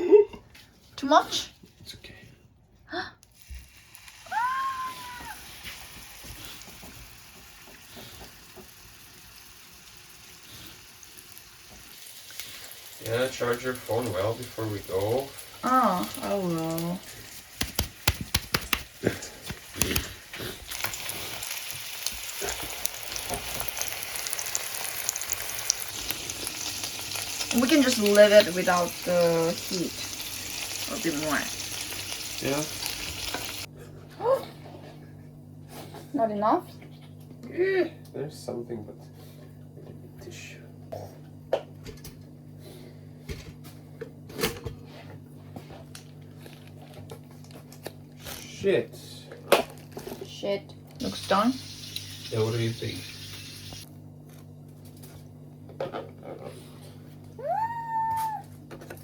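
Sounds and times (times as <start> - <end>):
patties sizzling in a pan: 3.3 - 33.7, 51.0 - 53.9
kitchen items knocking and clicking: 17.6 - 20.2.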